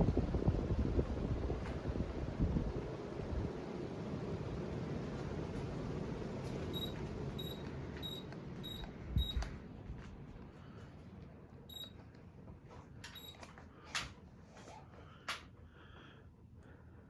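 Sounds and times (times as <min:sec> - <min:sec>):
ceiling fan airflow rush: 0:00.0 - 0:17.0
short high-pitched electronic beeps: 0:06.8 - 0:09.4.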